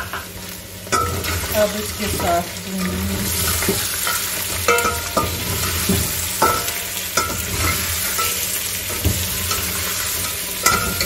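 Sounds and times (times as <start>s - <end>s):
meat frying in oil: 0.0s - 11.0s
spoon knocking on pot: 3.2s - 9.3s, 10.6s - 11.0s.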